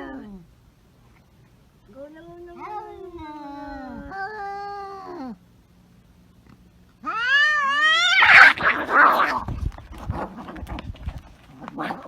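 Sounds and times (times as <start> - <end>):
cats yowling: 2.2 - 5.4, 7.0 - 9.4.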